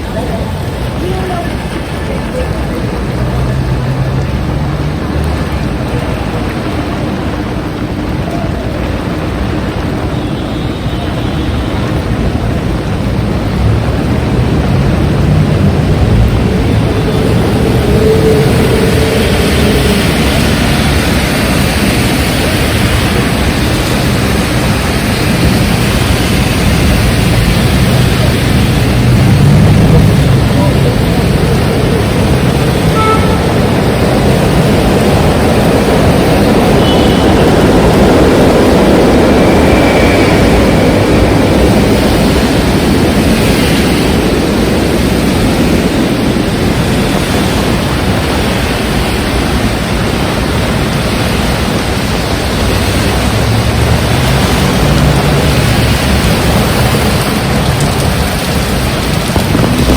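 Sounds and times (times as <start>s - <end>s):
heavy rain: 0.0s - 59.9s
strong wind: 0.0s - 59.9s
low rumble: 11.9s - 48.3s.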